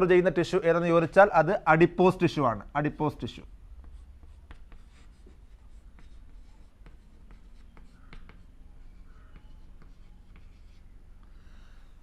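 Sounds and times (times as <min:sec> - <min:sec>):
pen scratching on paper: 0:03.8 - 0:12.0.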